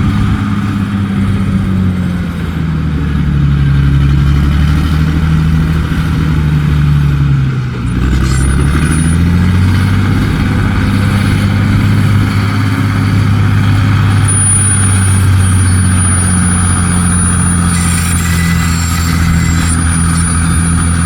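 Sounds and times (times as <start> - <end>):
truck diesel engine running: 0.0 - 21.0
thin high whine: 14.1 - 21.0.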